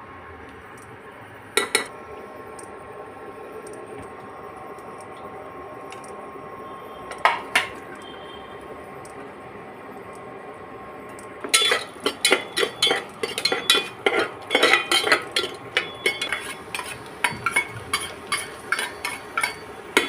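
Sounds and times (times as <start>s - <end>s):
metal utensil clanking against pan: 1.6s - 1.9s, 7.1s - 7.8s, 11.4s - 20.0s.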